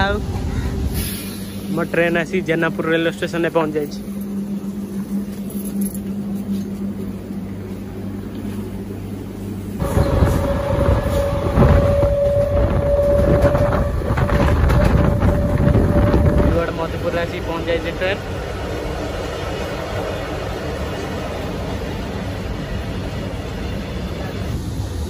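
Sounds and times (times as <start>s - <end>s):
train running noise: 0.0s - 25.0s
train whine: 0.0s - 25.0s
low hum: 1.2s - 19.6s.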